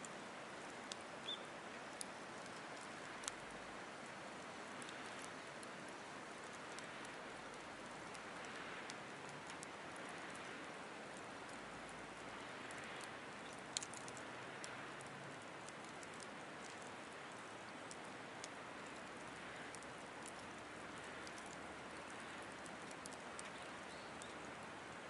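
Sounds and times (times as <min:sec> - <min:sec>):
fire crackles and pops: 0:00.0 - 0:25.0
wood fire hissing: 0:00.0 - 0:25.0.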